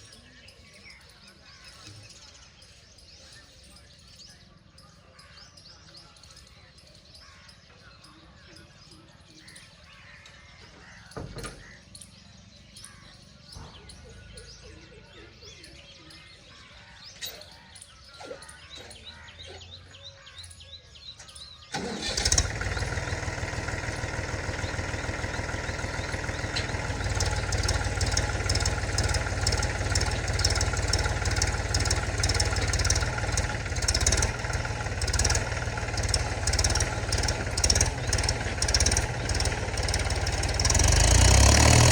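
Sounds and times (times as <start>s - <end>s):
birds chirping faintly: 0.0s - 41.9s
tractor diesel engine: 21.7s - 41.9s.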